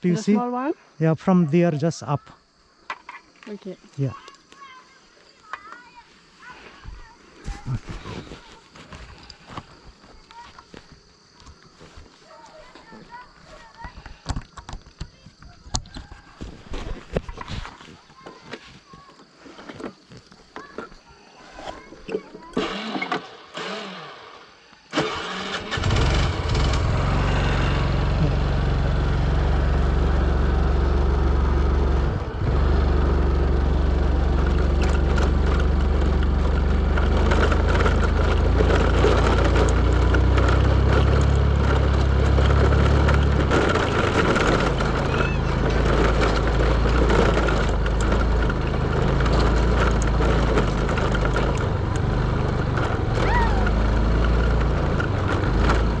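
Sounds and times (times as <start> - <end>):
vehicle engine running: 25.0 - 56.0.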